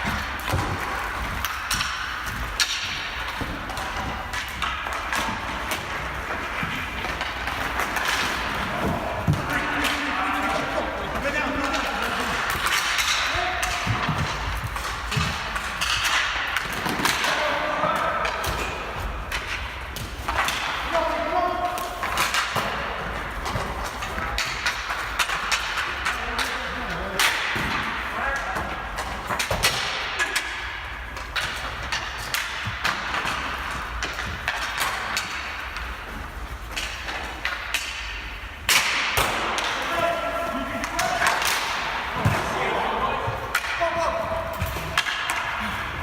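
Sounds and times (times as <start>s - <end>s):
hockey sticks and ball clacking: 0.0s - 46.0s
players shouting: 39.6s - 46.0s.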